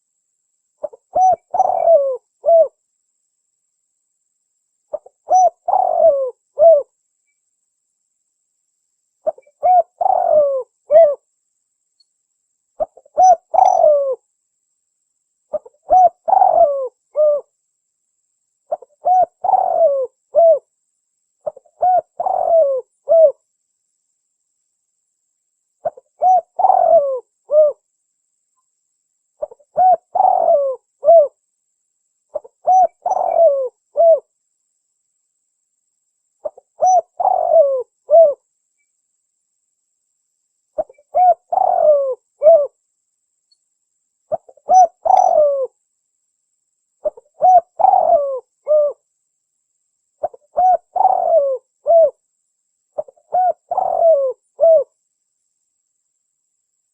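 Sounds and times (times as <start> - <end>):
dove cooing: 0.8 - 2.8, 4.9 - 6.9, 9.2 - 11.2, 12.8 - 14.2, 15.5 - 17.5, 18.7 - 20.7, 21.4 - 23.4, 25.8 - 27.8, 29.4 - 31.4, 32.3 - 34.3, 36.4 - 38.4, 40.8 - 42.8, 44.3 - 45.7, 47.0 - 49.0, 50.2 - 52.2, 53.0 - 55.0.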